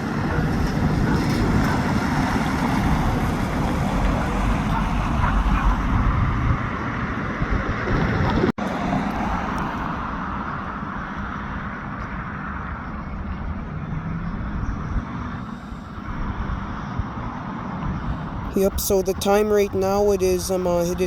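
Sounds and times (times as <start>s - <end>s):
diesel locomotives rumbling: 0.0s - 8.5s.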